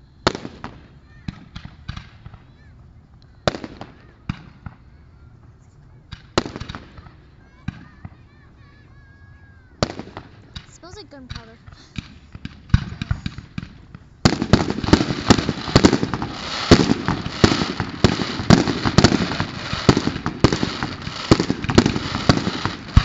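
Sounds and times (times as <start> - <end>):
fireworks bangs and crackles: 0.0 - 23.0
fireworks pops: 9.8 - 23.0.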